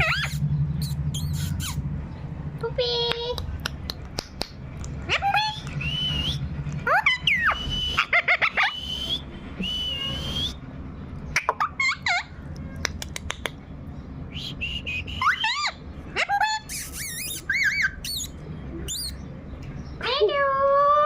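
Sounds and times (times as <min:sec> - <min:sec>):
parrot sweeping calls: 0:00.0 - 0:01.8
parrot whistling: 0:05.5 - 0:10.6, 0:16.4 - 0:19.2.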